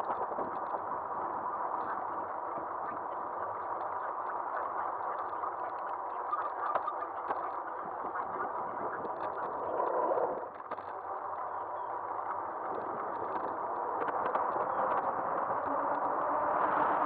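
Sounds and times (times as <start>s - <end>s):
wind rush: 8.6s - 10.5s.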